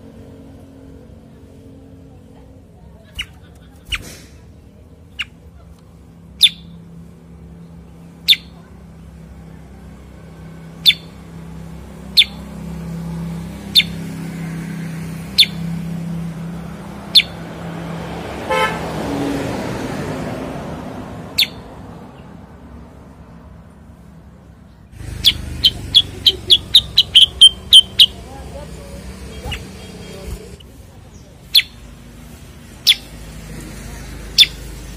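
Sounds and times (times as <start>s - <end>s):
motor vehicle passing: 0.0s - 34.9s
bird giving sharp call notes: 25.0s - 28.3s
low engine drone: 25.0s - 30.7s.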